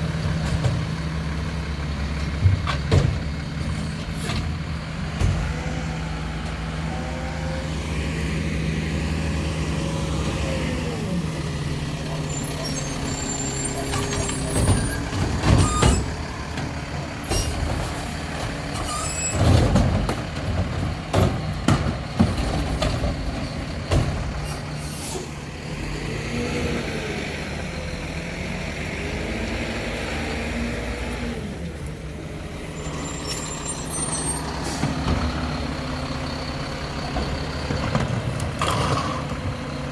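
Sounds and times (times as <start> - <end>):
diesel engine running: 0.0 - 39.9
air brakes hissing: 12.3 - 16.1, 24.4 - 25.4.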